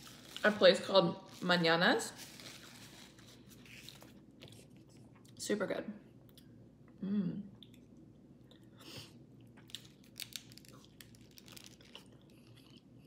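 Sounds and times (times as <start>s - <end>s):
chewing with crisp crunches: 7.5s - 13.0s.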